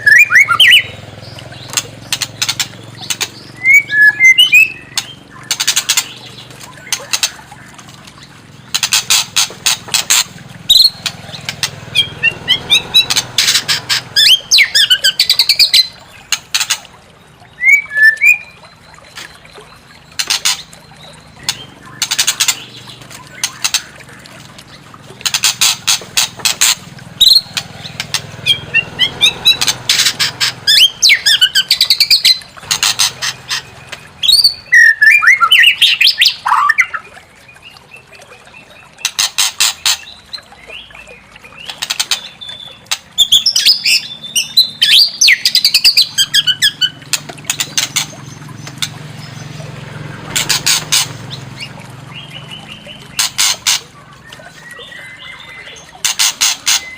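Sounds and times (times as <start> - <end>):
bird whistled notes: 0.0 - 0.9, 3.6 - 4.9, 17.6 - 18.6.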